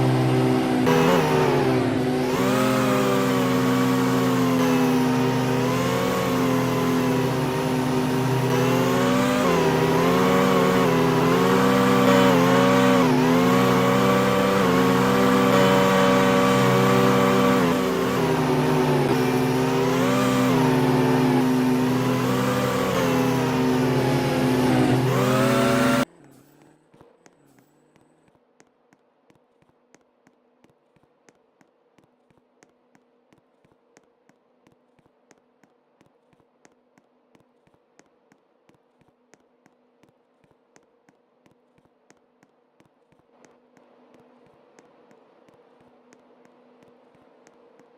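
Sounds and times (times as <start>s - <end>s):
engine running: 0.0s - 26.4s.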